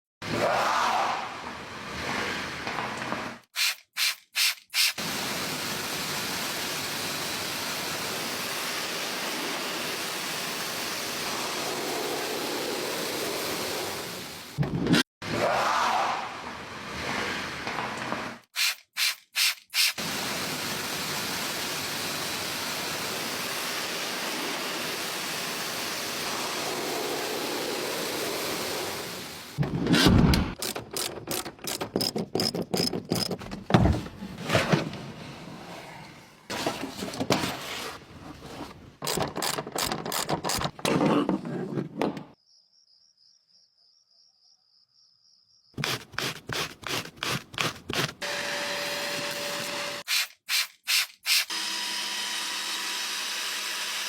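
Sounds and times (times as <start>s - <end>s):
choppy spraying and rubbing: 3.6s - 5.0s, 18.6s - 20.0s, 45.8s - 48.2s, 50.1s - 51.5s
water spray hissing: 3.6s - 14.4s, 18.6s - 29.6s, 45.8s - 48.2s, 50.0s - 51.5s.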